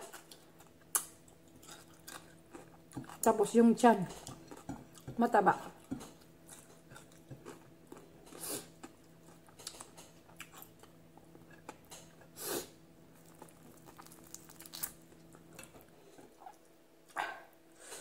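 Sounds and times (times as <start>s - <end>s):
chewing crispy fried fish: 0.0s - 3.4s, 4.1s - 12.3s, 13.2s - 16.7s
low steady hum: 0.0s - 18.0s.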